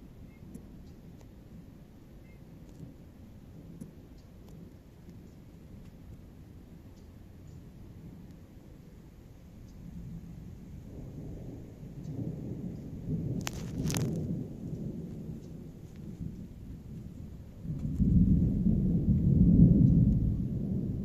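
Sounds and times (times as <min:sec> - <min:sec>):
thunder rumbling: 0:07.7 - 0:21.0
sharp thunder cracks: 0:09.9 - 0:21.0.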